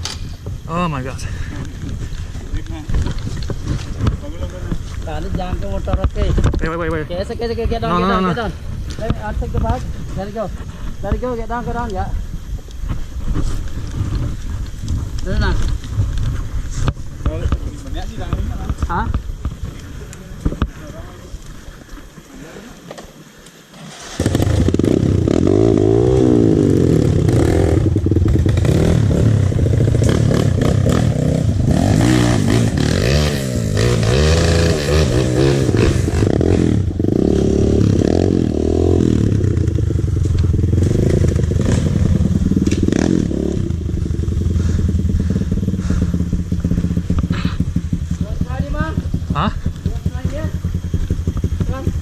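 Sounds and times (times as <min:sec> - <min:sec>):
dirt bike engine revving: 0:23.8 - 0:52.0.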